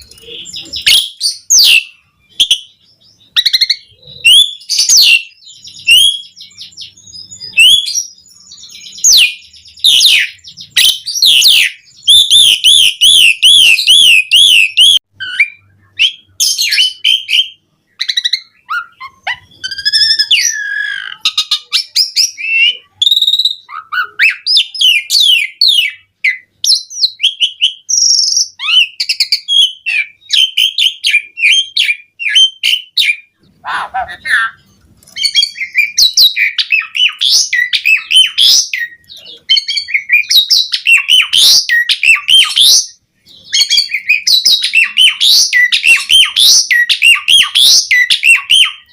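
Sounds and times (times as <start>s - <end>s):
starling singing: 0.0s - 48.9s.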